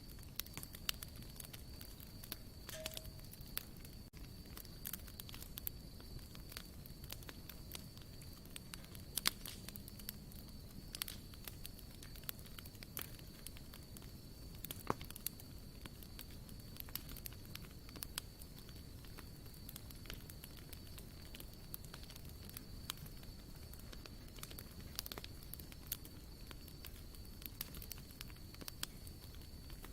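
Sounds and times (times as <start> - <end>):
campfire crackling: 0.0 - 29.9
low rumble of flames: 0.0 - 29.9
sharp pops and snaps: 0.1 - 13.8, 14.6 - 16.0.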